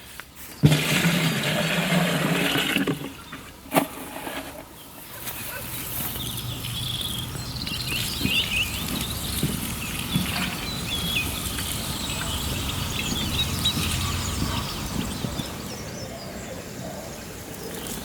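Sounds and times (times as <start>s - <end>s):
birds chirping: 4.7s - 18.0s.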